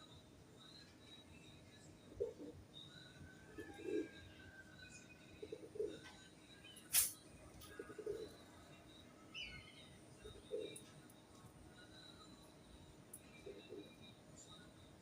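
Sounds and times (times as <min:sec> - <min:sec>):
pigeons cooing: 0:07.7 - 0:08.4.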